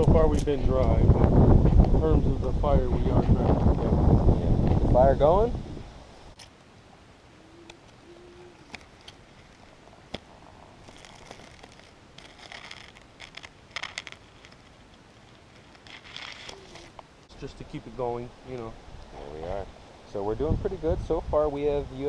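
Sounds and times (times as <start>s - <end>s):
sticks rustling and crackling: 7.6s - 17.1s
campfire snapping: 8.6s - 17.1s.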